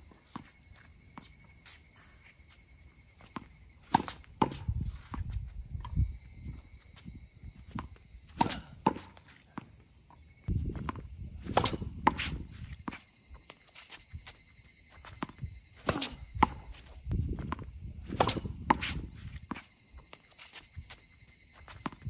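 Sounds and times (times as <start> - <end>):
footsteps on court: 0.0 - 22.0
shoes scuffing on court: 0.0 - 22.0
ball bouncing on court: 3.3 - 5.3, 10.8 - 13.0, 15.2 - 16.8, 17.4 - 19.6, 21.8 - 22.0
tennis ball struck by racket: 3.4 - 5.3, 7.8 - 9.2, 10.8 - 12.5, 15.2 - 19.6.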